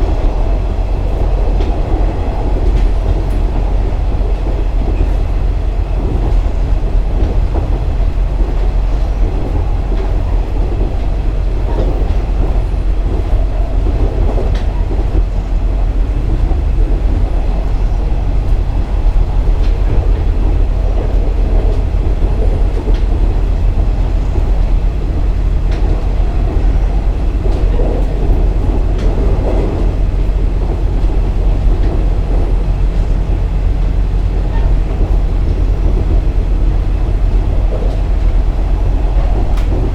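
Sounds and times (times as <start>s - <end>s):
diesel railcar rumbling: 0.0s - 39.9s
wheels clicking over rail joints: 0.0s - 39.9s.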